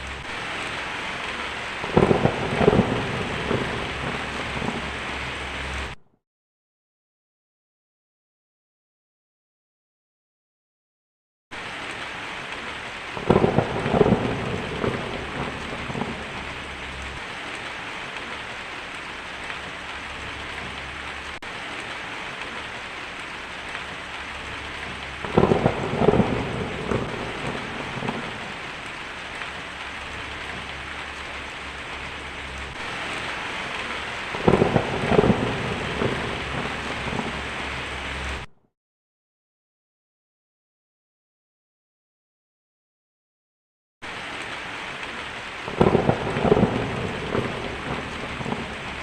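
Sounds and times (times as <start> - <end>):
steady rain falling: 0.0 - 6.0, 11.5 - 38.5, 44.0 - 49.0
thunder claps rumbling: 0.0 - 6.0, 12.6 - 18.4, 19.0 - 38.5, 45.6 - 49.0.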